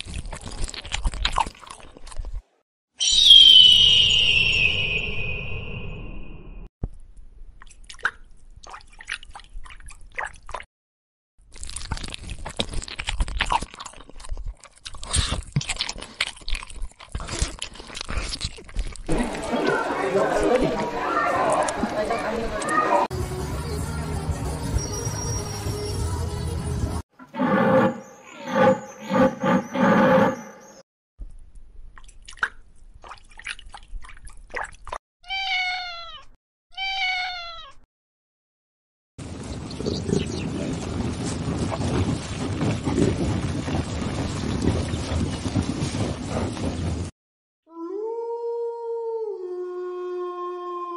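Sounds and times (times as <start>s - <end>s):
monkey chewing and biting food: 0.0s - 2.6s, 11.5s - 19.7s
cat meowing: 35.2s - 37.8s.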